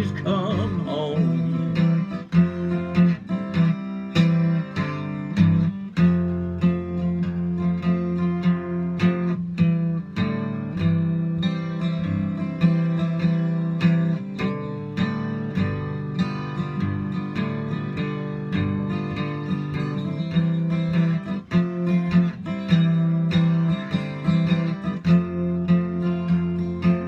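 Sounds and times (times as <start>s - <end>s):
acoustic guitar blues: 0.0s - 27.0s.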